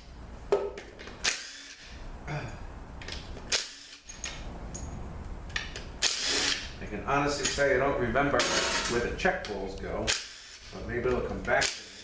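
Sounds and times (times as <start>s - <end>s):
power tool bursts: 1.2s - 2.0s, 3.5s - 4.1s, 6.0s - 6.8s, 8.4s - 9.0s, 10.1s - 10.7s.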